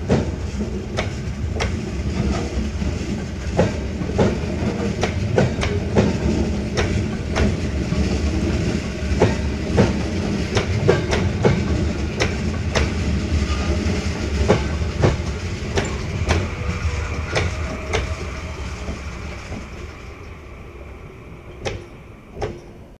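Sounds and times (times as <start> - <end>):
train rumble: 0.0 - 23.0
train wheels clacking: 0.0 - 23.0.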